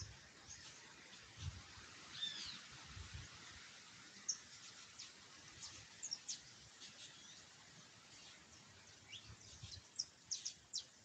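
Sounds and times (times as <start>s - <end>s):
background hiss: 0.0s - 11.0s
songbirds chirping and whistling: 1.4s - 2.7s, 4.2s - 7.5s, 8.1s - 11.0s.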